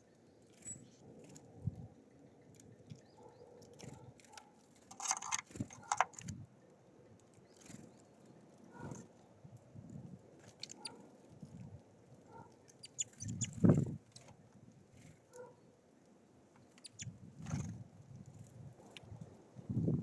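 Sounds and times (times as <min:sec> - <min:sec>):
high bird chirps: 0:12.8 - 0:13.7, 0:16.8 - 0:17.1.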